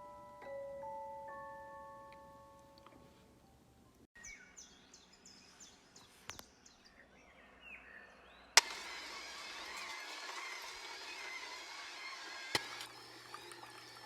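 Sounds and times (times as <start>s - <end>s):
small birds chirping: 3.9s - 8.7s.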